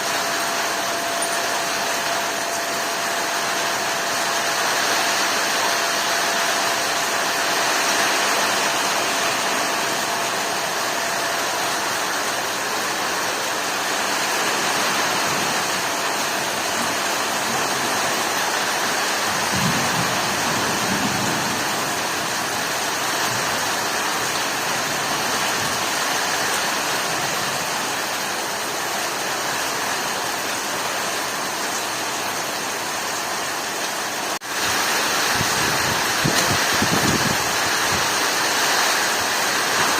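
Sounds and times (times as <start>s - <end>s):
heavy rain pouring: 0.0s - 39.9s
low thunder rumble: 19.4s - 23.6s.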